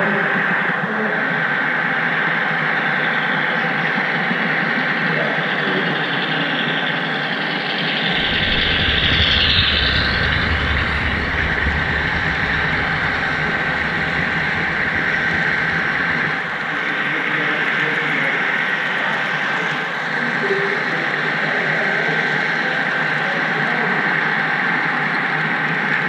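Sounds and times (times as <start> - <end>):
thin steady whine: 5.1 - 21.4
deep low rumble: 8.0 - 17.6.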